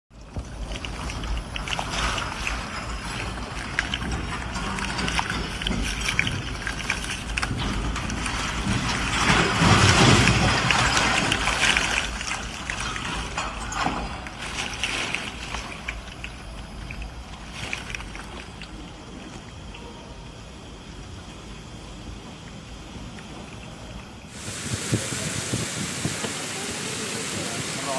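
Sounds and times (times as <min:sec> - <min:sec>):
heavy rain: 0:07.5 - 0:13.8, 0:24.3 - 0:27.9
strong wind gusting: 0:24.3 - 0:27.9.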